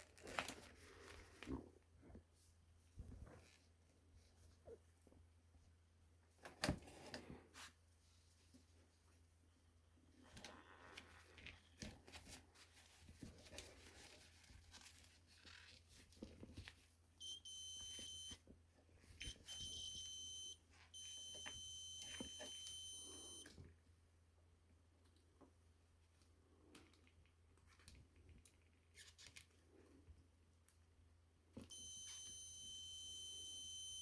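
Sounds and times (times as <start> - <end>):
continuity tester beeping: 17.2 - 18.4, 19.2 - 23.4, 31.7 - 34.0.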